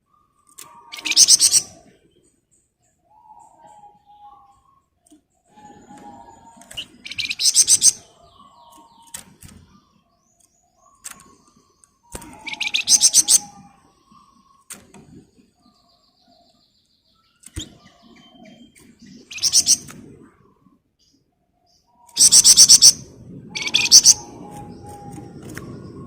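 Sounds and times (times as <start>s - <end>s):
bird singing rapid trill: 0.2s - 4.9s, 6.2s - 14.7s, 15.6s - 19.8s, 21.8s - 23.0s, 23.6s - 25.5s.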